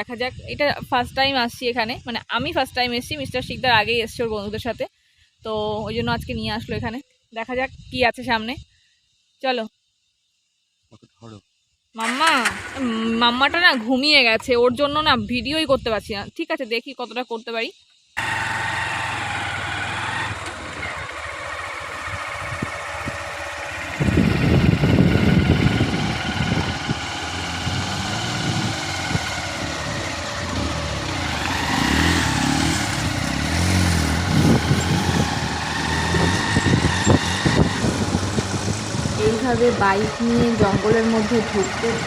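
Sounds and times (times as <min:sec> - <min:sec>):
motorcycle engine running: 0:12.0 - 0:14.6, 0:18.2 - 0:42.0
rough low rumble: 0:20.3 - 0:42.0.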